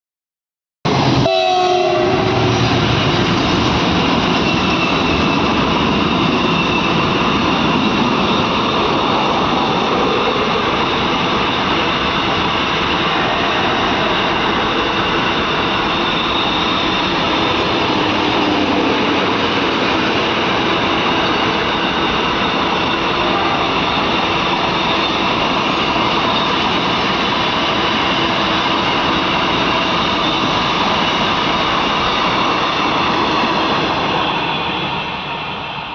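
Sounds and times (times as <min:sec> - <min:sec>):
train wheels on rail: 0:00.9 - 0:35.9
train horn: 0:01.2 - 0:02.5, 0:23.2 - 0:24.0.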